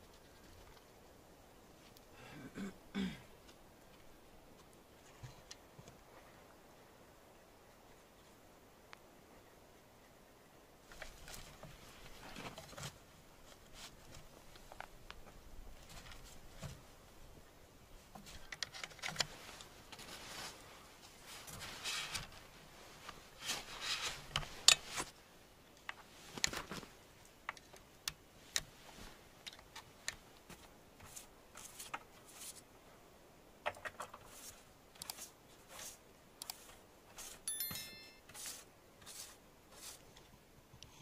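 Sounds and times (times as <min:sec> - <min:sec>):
scrapes and rustles: 0:10.8 - 0:17.0, 0:18.0 - 0:25.2, 0:25.8 - 0:27.0, 0:28.4 - 0:32.7, 0:33.6 - 0:37.5, 0:38.2 - 0:40.4
ringing metal clink: 0:37.5 - 0:38.3.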